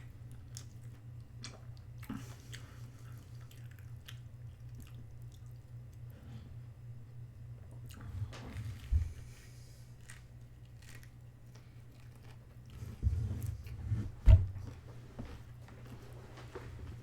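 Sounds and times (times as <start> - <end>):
chewing and biting food: 0.3 - 6.0, 9.8 - 12.8.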